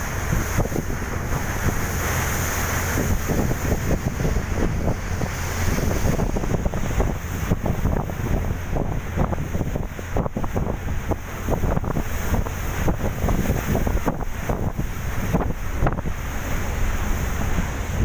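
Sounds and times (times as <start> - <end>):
boat engine drone: 0.0 - 18.0
rushing water: 0.0 - 18.0
wind buffeting microphone: 0.0 - 18.0.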